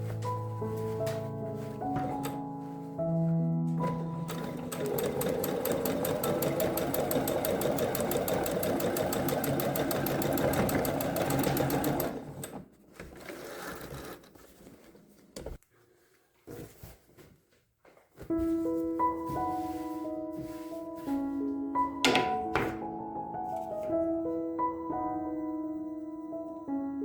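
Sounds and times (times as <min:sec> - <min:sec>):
sewing machine stitching: 0:03.8 - 0:14.6.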